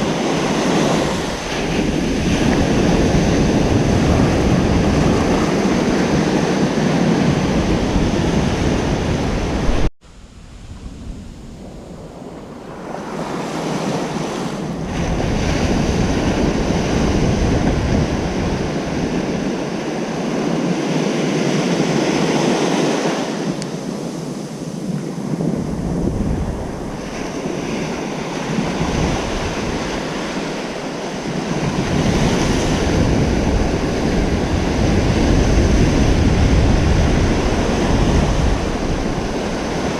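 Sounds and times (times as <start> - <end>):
waves breaking on a beach: 0.0 - 39.9
wind rumble on microphone: 0.0 - 39.9.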